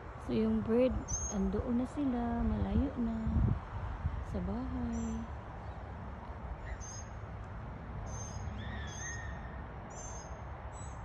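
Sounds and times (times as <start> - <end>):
small birds chirping: 0.3 - 1.8, 4.3 - 7.3, 8.0 - 11.0.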